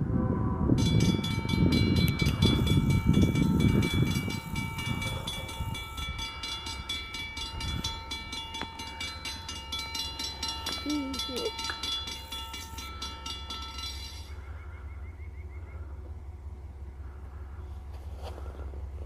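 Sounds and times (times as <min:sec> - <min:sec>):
train rumbling past: 0:00.0 - 0:19.0
rapid ringing bell: 0:00.8 - 0:14.6.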